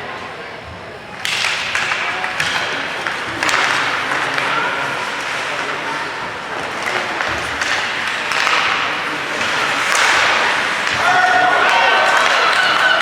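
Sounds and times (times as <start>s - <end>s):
crowd clapping and shouting: 10.9s - 13.0s.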